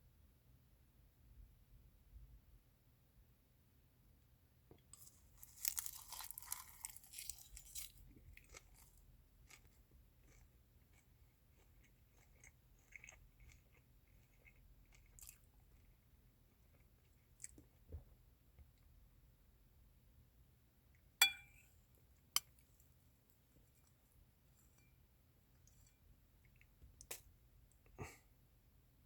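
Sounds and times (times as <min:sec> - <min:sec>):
person chewing crunchy food: 0:05.0 - 0:17.8.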